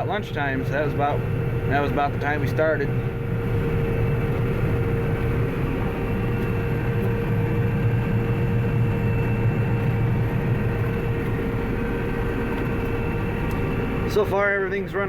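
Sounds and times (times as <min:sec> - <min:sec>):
combine harvester droning: 0:00.0 - 0:15.0
steady machine whine: 0:00.0 - 0:15.0.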